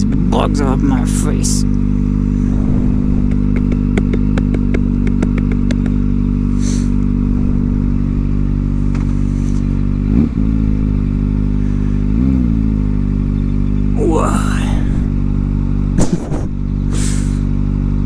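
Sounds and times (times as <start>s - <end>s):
motorcycle engine idling: 0.0s - 18.0s
quick run of clicks: 3.5s - 6.9s.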